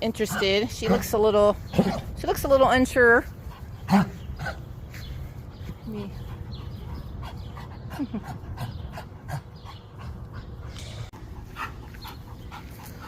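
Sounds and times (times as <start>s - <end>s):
dog panting: 0.0s - 2.0s, 5.5s - 13.0s.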